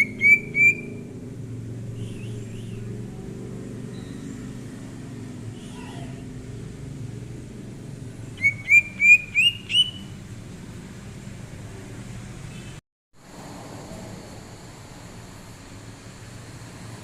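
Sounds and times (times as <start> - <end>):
bird whistled chirps: 0.0 - 1.0, 2.0 - 2.8, 8.4 - 10.2.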